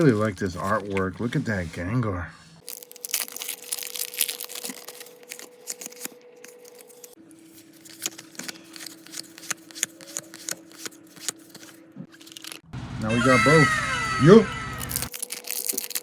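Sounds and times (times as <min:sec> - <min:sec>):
card crinkling: 0:00.0 - 0:01.7, 0:02.6 - 0:12.7, 0:14.8 - 0:16.0
trading cards clicking and rustling: 0:02.6 - 0:12.7.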